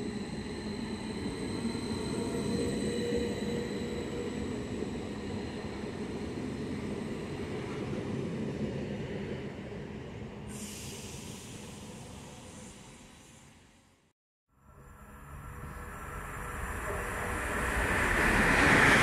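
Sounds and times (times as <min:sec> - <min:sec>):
hiss: 0:10.5 - 0:13.8
train rumbling past: 0:14.7 - 0:19.0.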